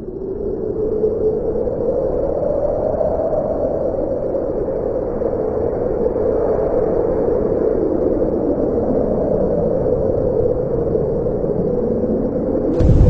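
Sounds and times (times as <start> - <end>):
explosion fireball roar: 12.8 - 13.0.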